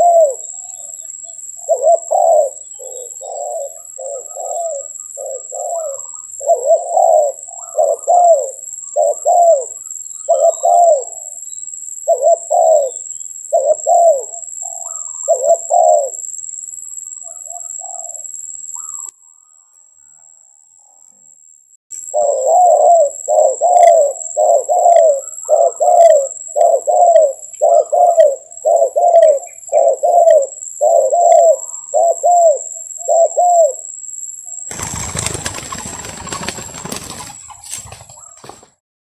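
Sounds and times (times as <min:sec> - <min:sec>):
dove cooing: 0:00.0 - 0:01.0, 0:01.6 - 0:11.4, 0:12.1 - 0:16.2, 0:22.1 - 0:33.8, 0:34.7 - 0:38.8.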